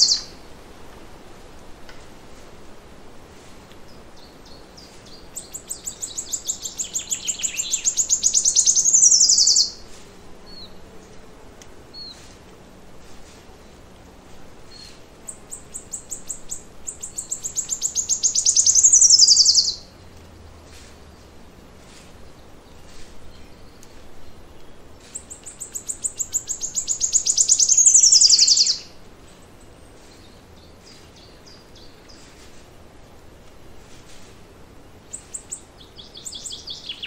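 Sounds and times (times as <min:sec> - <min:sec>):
songbird trilling song: 0:00.0 - 0:00.4, 0:03.9 - 0:11.2, 0:14.7 - 0:19.9, 0:22.3 - 0:32.6, 0:34.8 - 0:37.0.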